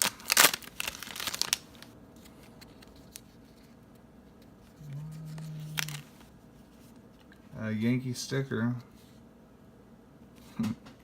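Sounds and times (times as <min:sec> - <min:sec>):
wrapper tearing and crinkling: 0:00.0 - 0:01.9, 0:05.4 - 0:06.2
faint handling of cards: 0:00.0 - 0:07.5.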